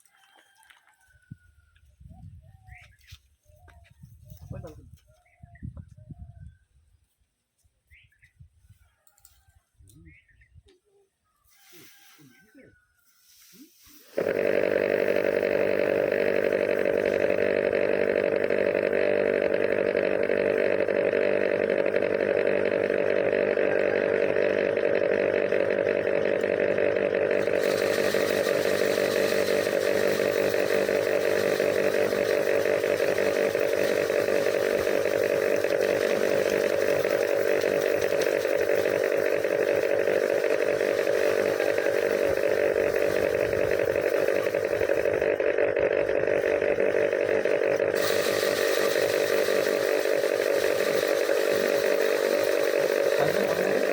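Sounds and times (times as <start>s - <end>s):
hiss: 13.4s - 14.2s
threshing machine running: 14.0s - 53.9s.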